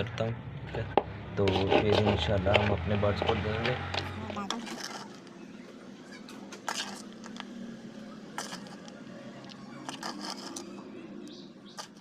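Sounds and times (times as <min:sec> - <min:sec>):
spoon scraping: 0:00.7 - 0:05.3, 0:06.6 - 0:07.4, 0:08.3 - 0:10.8
spoon mixing food in bowl: 0:01.4 - 0:05.2, 0:08.3 - 0:10.7.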